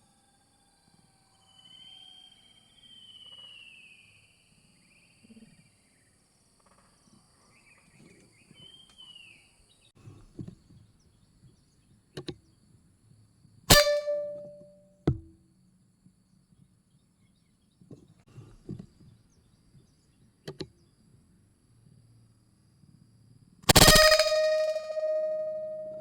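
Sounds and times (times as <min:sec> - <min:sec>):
faint bird chirps: 0:00.5 - 0:06.4, 0:07.0 - 0:12.6
air rifle shot crack: 0:13.7 - 0:15.3, 0:23.7 - 0:26.0
sharp knock: 0:13.7 - 0:15.4, 0:23.7 - 0:26.0.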